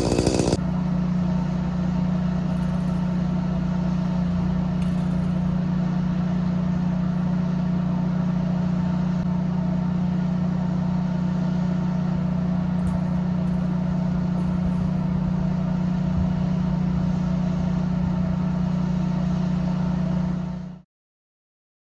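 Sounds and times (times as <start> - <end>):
engine running steadily: 0.0 - 0.6.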